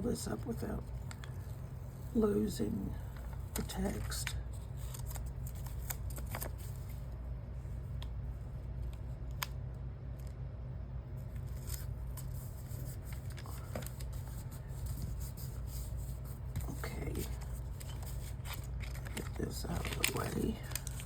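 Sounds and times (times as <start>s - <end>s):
steady low hum: 0.0s - 21.0s
paper rustling and peeling: 3.0s - 7.2s, 11.2s - 21.0s.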